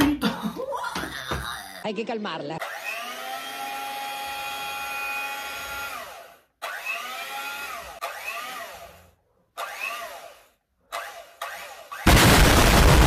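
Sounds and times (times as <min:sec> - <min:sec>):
electric hand mixer whirring: 0:02.6 - 0:12.8.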